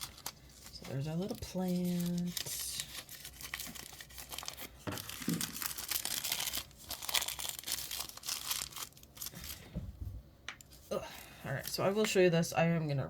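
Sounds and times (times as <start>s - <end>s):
wrappers crinkling and tearing: 0.0s - 9.7s.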